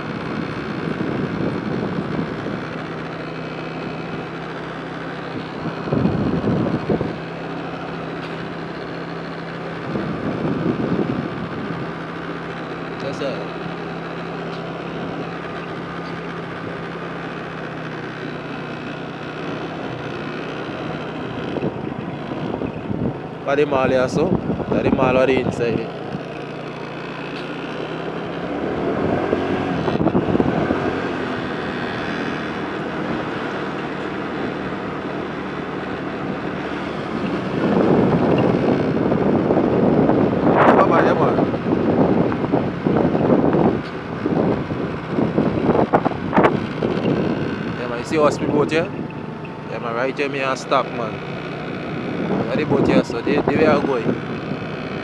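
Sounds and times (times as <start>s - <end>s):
wind rushing over microphone: 0.0s - 3.0s, 5.4s - 7.8s, 9.7s - 12.2s, 21.3s - 26.2s, 28.5s - 33.4s, 36.0s - 55.0s
motorbike engine running: 0.0s - 55.0s.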